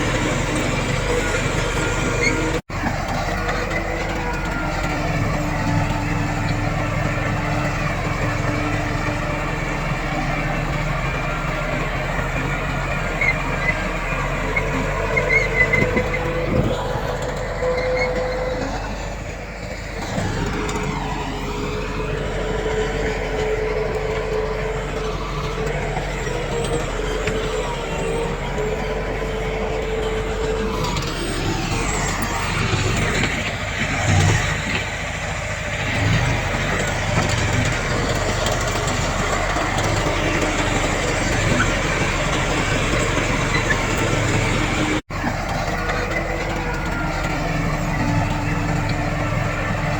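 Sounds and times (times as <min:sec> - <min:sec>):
heavy machinery engine rumble: 0:00.0 - 0:49.9.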